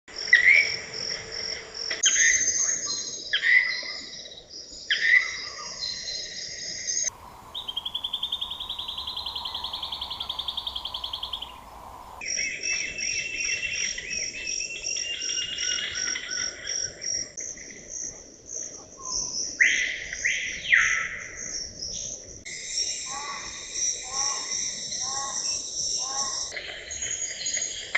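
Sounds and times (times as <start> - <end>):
rapidly pulsing insect call: 0.1 - 19.6, 21.2 - 27.9
birds calling: 7.0 - 12.8
insects buzzing high-pitched: 7.1 - 12.4.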